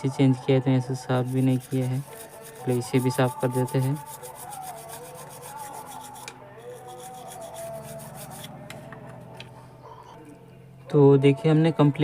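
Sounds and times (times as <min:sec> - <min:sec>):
scrubbing on a circuit board: 0:01.2 - 0:08.5.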